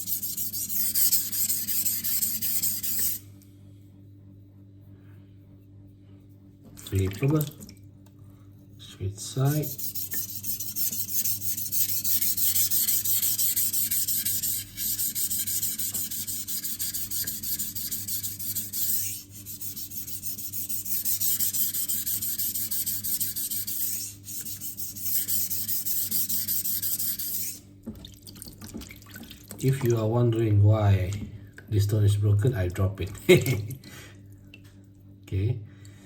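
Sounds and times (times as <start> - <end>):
knife scraping on whetstone: 0.0 - 3.2, 9.6 - 27.6.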